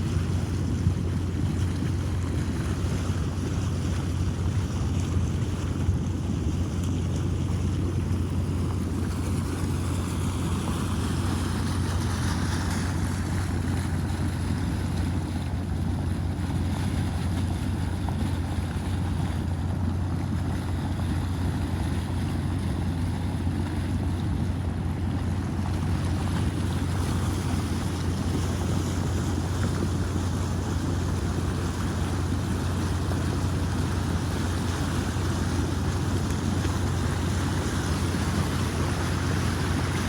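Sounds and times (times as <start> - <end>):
flood water rushing: 0.0 - 40.0.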